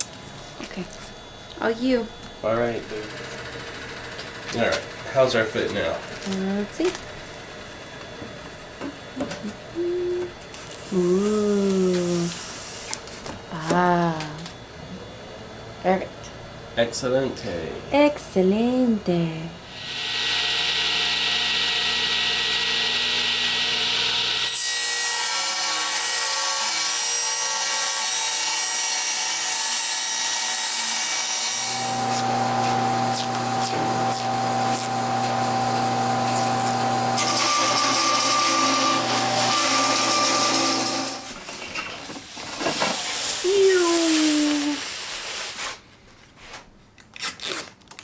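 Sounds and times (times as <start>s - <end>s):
power tool sawing: 1.6s - 7.9s, 19.6s - 45.2s.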